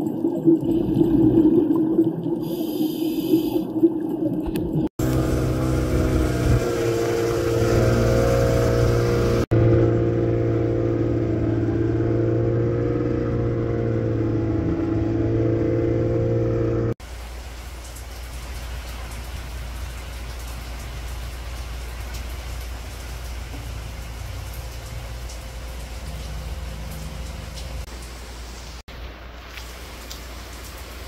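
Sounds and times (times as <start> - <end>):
vehicle engine running: 5.0 - 17.0.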